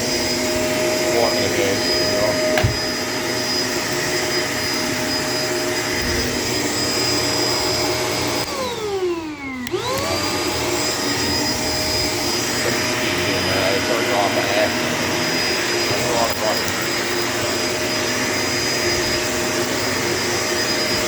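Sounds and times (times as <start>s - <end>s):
vacuum cleaner running: 0.0s - 21.0s
vacuum click: 2.0s - 3.0s, 9.6s - 10.3s.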